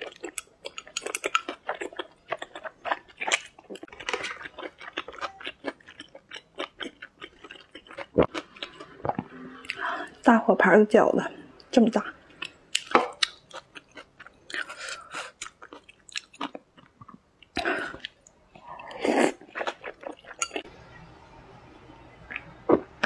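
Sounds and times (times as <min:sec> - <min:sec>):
person chewing with mouth smacks: 0:12.4 - 0:20.4.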